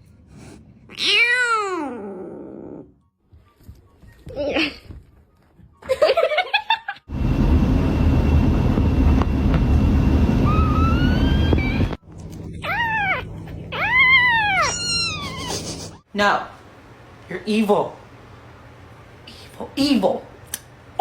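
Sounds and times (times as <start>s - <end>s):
cat meowing: 0.9s - 2.8s, 12.6s - 15.7s
loud low rumbling: 7.1s - 13.7s.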